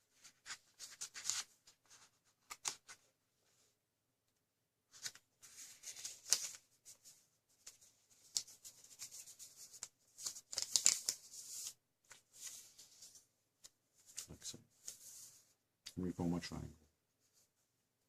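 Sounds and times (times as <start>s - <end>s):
paper rustling and crinkling: 0.1s - 3.1s, 4.9s - 15.5s.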